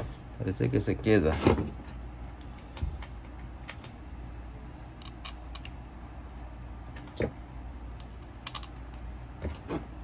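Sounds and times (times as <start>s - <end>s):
low steady hum: 0.0s - 10.0s
small parts clicking when handled: 5.0s - 5.8s, 7.9s - 9.1s.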